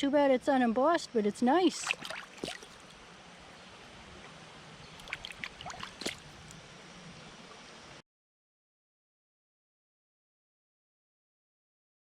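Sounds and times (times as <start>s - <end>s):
river water running: 0.9s - 8.0s
short splashy clicks: 1.8s - 2.8s, 5.0s - 6.2s.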